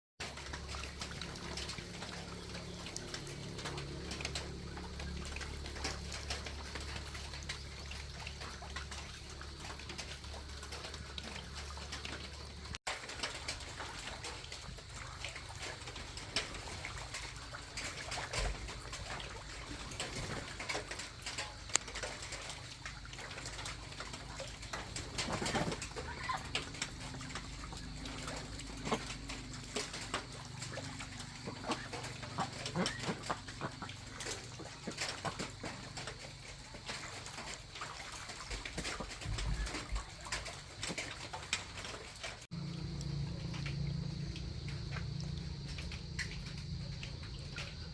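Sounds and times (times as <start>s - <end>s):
small clicks and knocks: 19.8s - 25.8s
birds calling: 23.7s - 37.5s.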